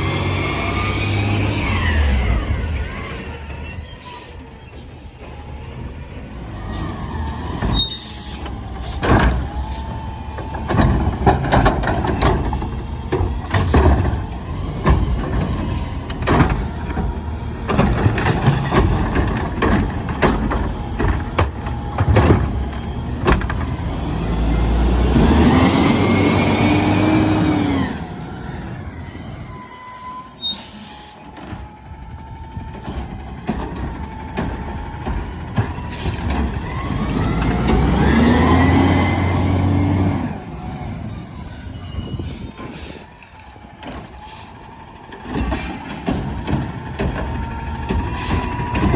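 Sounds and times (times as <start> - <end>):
hydraulic whine: 0.1 - 5.1
garbage truck engine running: 8.3 - 48.9
metal clanks and bangs: 43.7 - 48.9.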